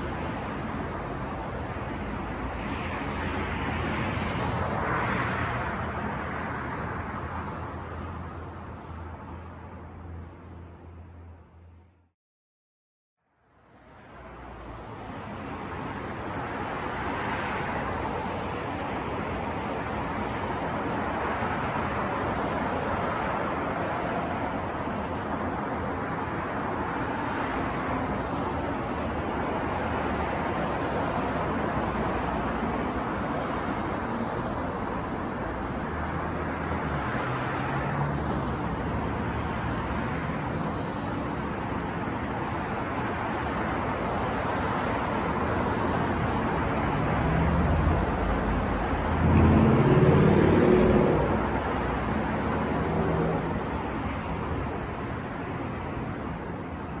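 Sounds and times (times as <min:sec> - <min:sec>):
passing cars: 0:00.0 - 0:11.9, 0:13.6 - 0:57.0
loud vehicle engine passing: 0:46.7 - 0:54.1.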